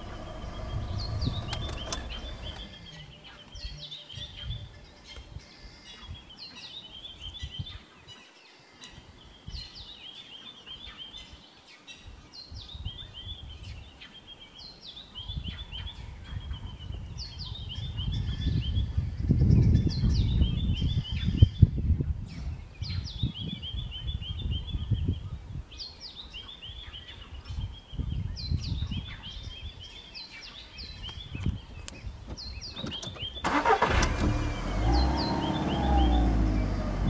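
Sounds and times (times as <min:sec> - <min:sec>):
low rumble: 0:00.0 - 0:03.4
songbird singing with trill: 0:00.0 - 0:37.0.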